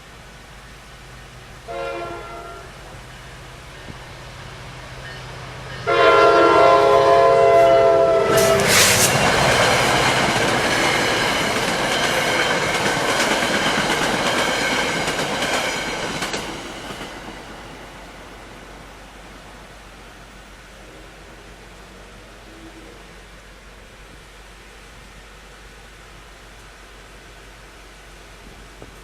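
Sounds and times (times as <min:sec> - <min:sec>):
train horn: 0:01.6 - 0:03.0, 0:05.0 - 0:09.5
train wheels clacking on rails: 0:08.2 - 0:19.3.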